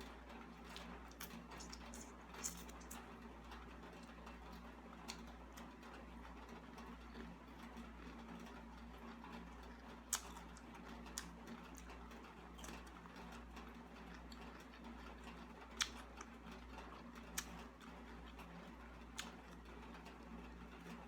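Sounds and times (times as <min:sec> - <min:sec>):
steady low hum: 0:00.0 - 0:21.0
person eating: 0:00.6 - 0:03.0.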